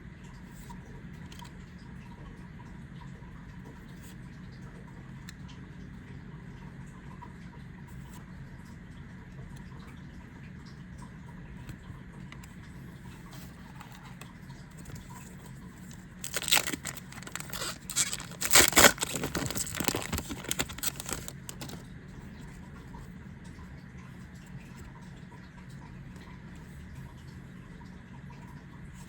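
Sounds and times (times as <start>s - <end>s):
foil wrapper tearing and crinkling: 15.8s - 21.8s.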